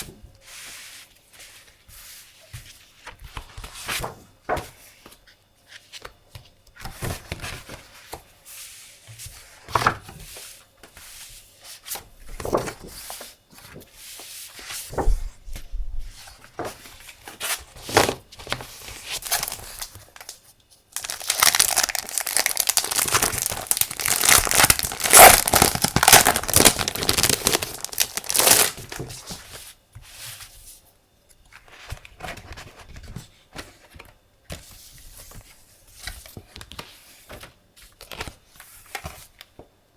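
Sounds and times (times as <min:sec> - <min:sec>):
packaging rustling and crinkling: 0:14.8 - 0:29.6
packaging tearing: 0:19.2 - 0:20.3, 0:21.0 - 0:29.0.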